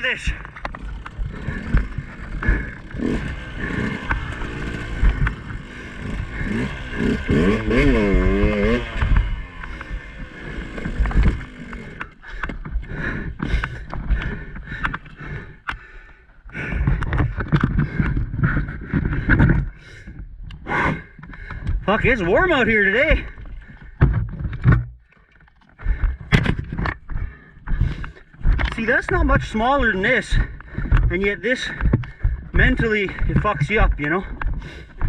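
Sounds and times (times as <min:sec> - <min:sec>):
dirt bike engine revving: 0:00.0 - 0:15.6
knocks and scrapes: 0:16.8 - 0:20.1, 0:23.8 - 0:35.0.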